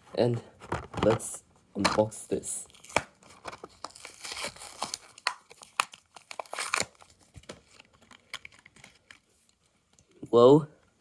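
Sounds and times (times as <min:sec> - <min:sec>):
card tearing: 0:02.7 - 0:09.1
plastic crinkling: 0:02.8 - 0:09.6.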